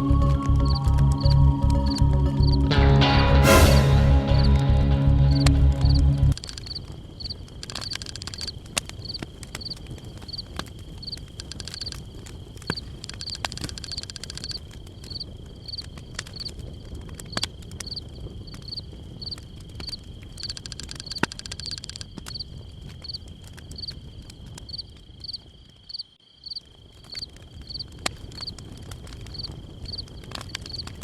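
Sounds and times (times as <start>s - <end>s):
insect chirping: 0.0s - 2.7s, 6.6s - 16.5s, 18.6s - 28.6s, 29.3s - 30.9s
insects droning: 0.0s - 2.7s, 5.3s - 31.0s
low rumble: 0.0s - 6.4s
scattered clicks: 6.4s - 6.8s, 7.6s - 9.7s, 11.4s - 14.6s, 20.4s - 22.3s.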